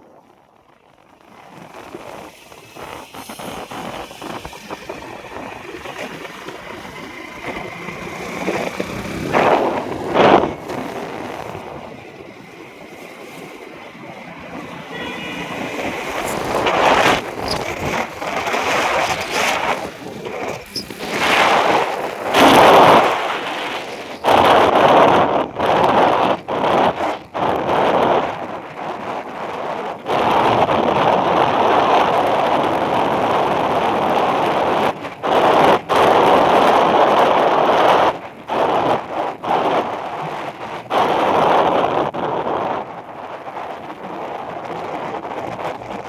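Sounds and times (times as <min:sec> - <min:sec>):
vehicles passing: 0:01.1 - 0:25.2.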